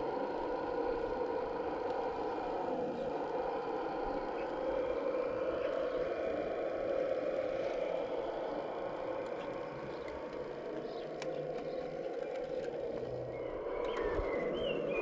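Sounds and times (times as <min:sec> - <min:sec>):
small electric motor whining: 0:00.0 - 0:15.0
light ticks: 0:09.2 - 0:13.2.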